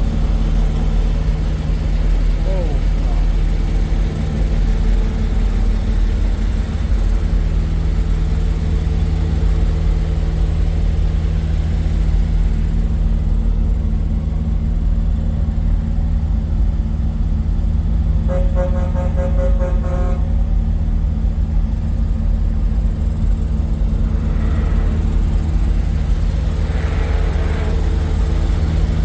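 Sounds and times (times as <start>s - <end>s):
truck engine idling: 0.0s - 29.0s
truck horn: 18.2s - 20.5s, 26.4s - 29.0s.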